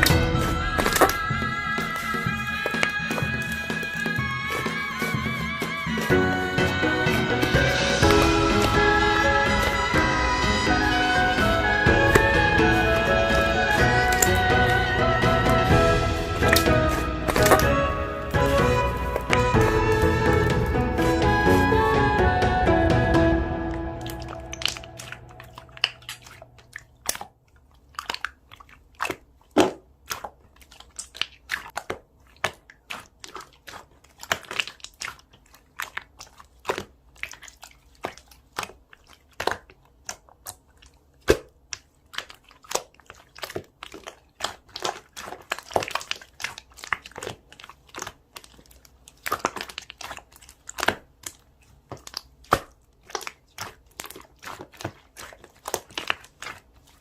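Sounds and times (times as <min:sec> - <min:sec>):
slime clicking and popping: 0:24.0 - 0:57.0.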